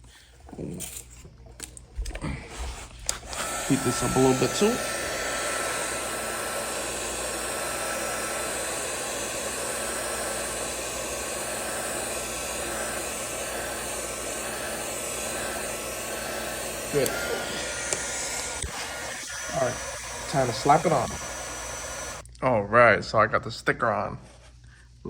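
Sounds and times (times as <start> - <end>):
heat gun blowing hiss: 2.6 - 22.2.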